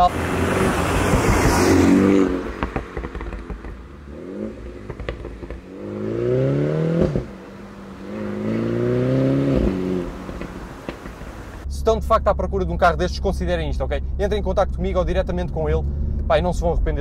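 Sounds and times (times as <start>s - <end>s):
car rushing by: 0.0s - 11.6s
car engine accelerating: 0.0s - 17.0s
exhaust crack at upshift: 0.0s - 17.0s.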